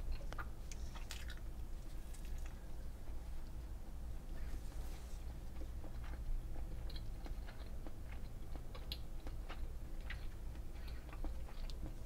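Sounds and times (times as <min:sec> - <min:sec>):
person chewing moist clicks: 0:00.0 - 0:02.6, 0:05.4 - 0:12.0
steady low hum: 0:00.0 - 0:12.0.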